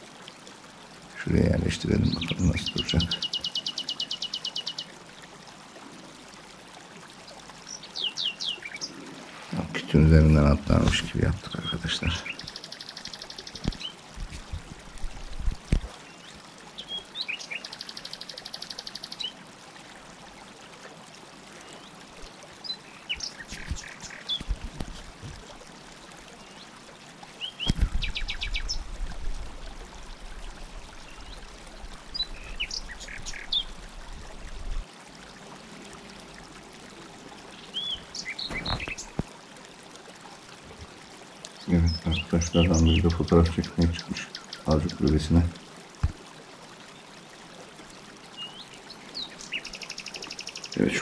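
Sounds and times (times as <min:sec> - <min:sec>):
birds chirping and trilling: 0:01.3 - 0:04.9, 0:07.6 - 0:14.0, 0:16.0 - 0:19.4, 0:22.6 - 0:24.6, 0:27.4 - 0:28.9, 0:30.8 - 0:33.8, 0:37.6 - 0:39.2, 0:41.5 - 0:45.5, 0:48.4 - 0:51.0.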